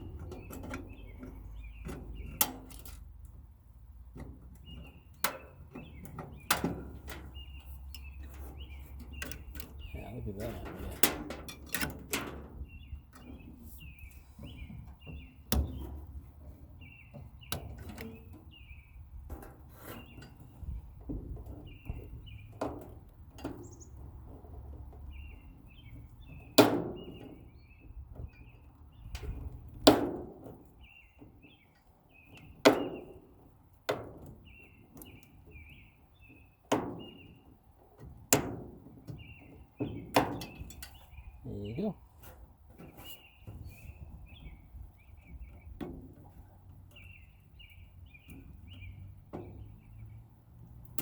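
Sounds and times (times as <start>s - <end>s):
small birds chirping: 0.0s - 29.9s, 30.5s - 51.0s
knocks and bangs on sheet metal: 25.9s - 28.4s, 29.0s - 31.4s, 32.3s - 34.7s, 36.6s - 37.4s, 38.0s - 40.8s.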